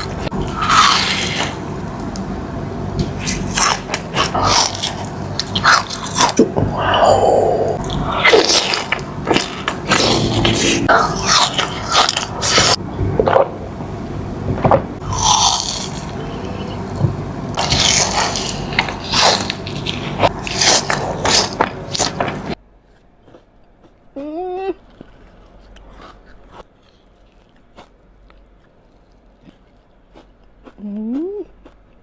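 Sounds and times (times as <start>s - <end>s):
crunchy chewing: 3.0s - 12.8s, 15.0s - 16.5s, 17.5s - 32.0s
short wavering hum: 9.1s - 18.8s.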